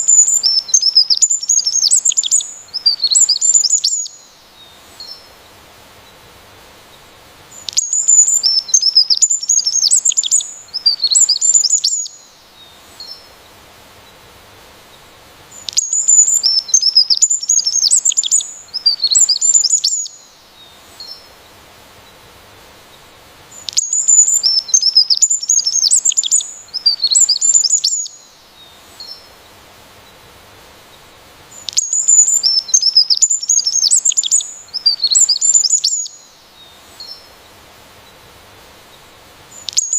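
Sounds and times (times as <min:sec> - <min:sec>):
songbird chirping and trilling: 0:00.0 - 0:05.3, 0:07.5 - 0:13.4, 0:15.5 - 0:21.4, 0:23.5 - 0:29.4, 0:31.0 - 0:37.4, 0:39.0 - 0:39.9.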